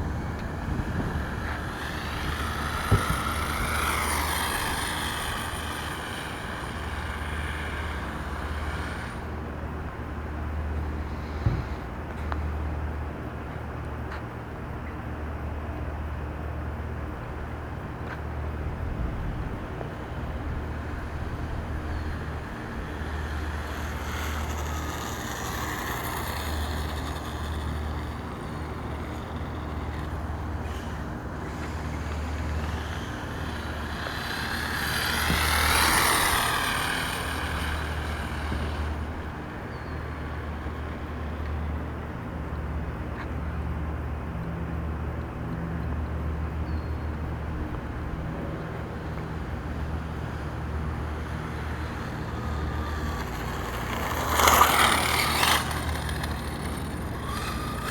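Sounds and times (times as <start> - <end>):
electric motor whining: 0.0 - 9.5, 19.7 - 42.2, 47.7 - 57.9
steady low hum: 0.0 - 57.9.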